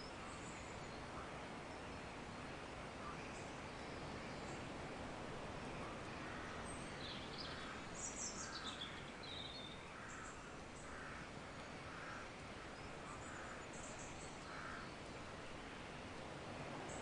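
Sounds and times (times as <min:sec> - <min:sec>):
soft hiss: 0:00.0 - 0:17.0
birds chirping: 0:05.4 - 0:17.0.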